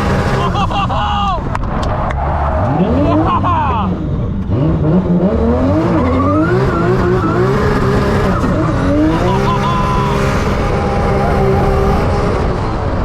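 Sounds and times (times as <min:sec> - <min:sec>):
car engine revving hard: 0:00.0 - 0:01.0, 0:02.1 - 0:13.0
tyres squealing: 0:05.8 - 0:12.2.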